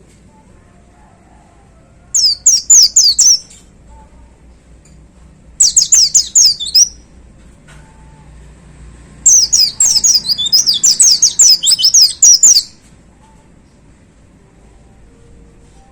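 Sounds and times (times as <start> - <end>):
bird singing high falling notes: 2.2 - 3.4, 5.6 - 7.0, 9.3 - 12.7.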